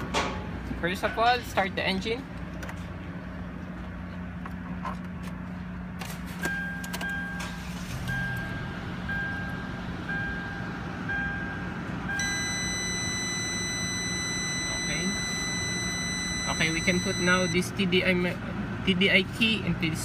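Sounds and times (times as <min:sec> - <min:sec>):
car engine idling: 0:00.0 - 0:20.0
high electronic beeps: 0:06.5 - 0:17.6
high buzzing tone: 0:08.1 - 0:17.6.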